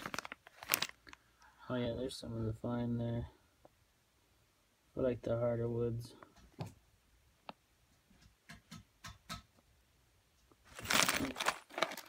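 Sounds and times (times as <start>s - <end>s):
small parts clicking and tapping: 7.5s - 9.6s.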